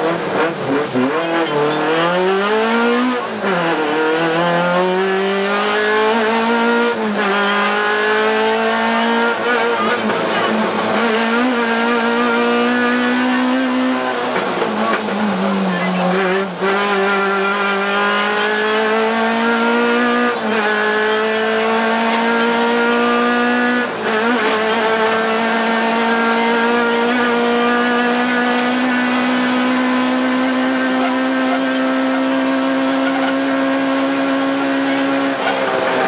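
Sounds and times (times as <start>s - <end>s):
rally car engine accelerating: 0.0s - 36.0s.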